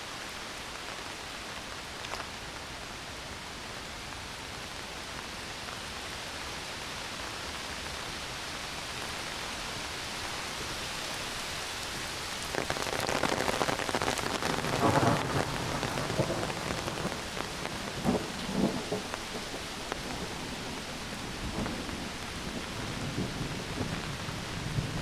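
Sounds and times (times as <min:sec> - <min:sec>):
heavy rain in forest: 0:00.0 - 0:25.0
thunder crackle and rumble: 0:12.3 - 0:25.0.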